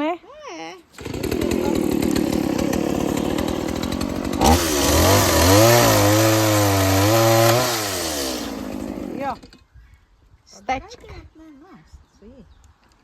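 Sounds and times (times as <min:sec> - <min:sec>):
chainsaw cutting a log: 0:01.0 - 0:09.4.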